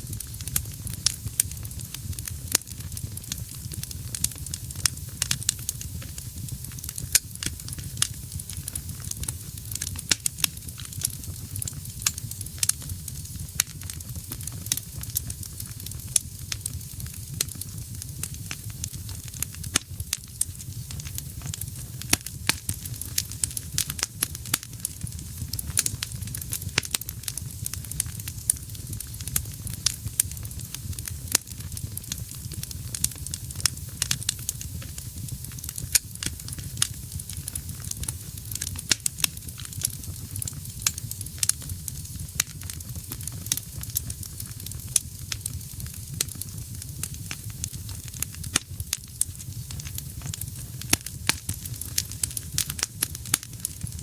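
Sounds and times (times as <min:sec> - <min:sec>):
burning logs crackling and popping: 0:00.0 - 0:54.0
low rumble of flame: 0:00.0 - 0:54.0.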